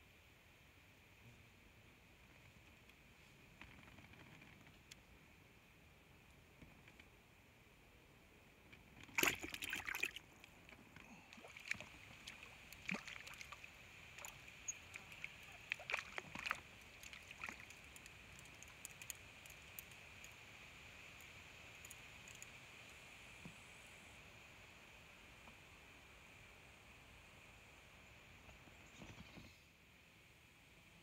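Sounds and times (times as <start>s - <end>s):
small ticks: 2.3s - 5.1s, 6.3s - 7.2s, 10.4s - 23.6s
water splashing: 9.1s - 10.3s, 11.0s - 18.7s.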